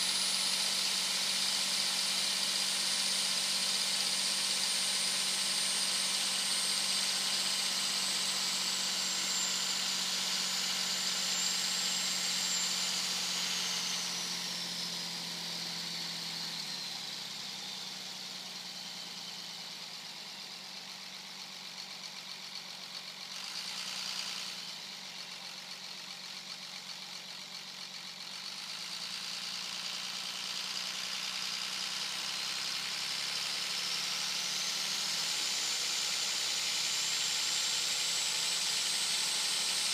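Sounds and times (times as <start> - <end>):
high-pitched turbo whistle: 0.0 - 17.2
diesel engine drone: 0.0 - 39.9.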